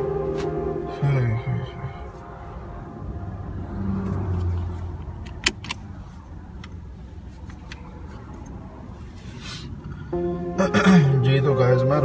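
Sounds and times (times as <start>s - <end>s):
car low hum: 0.0s - 12.0s.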